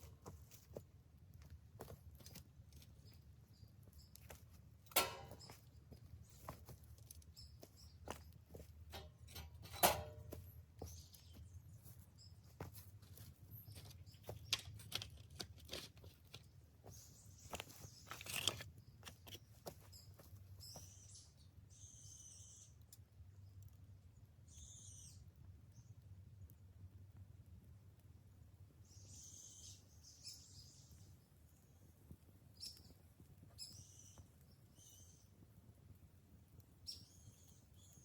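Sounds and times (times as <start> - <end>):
dry bamboo cracking and popping: 13.4 - 19.9.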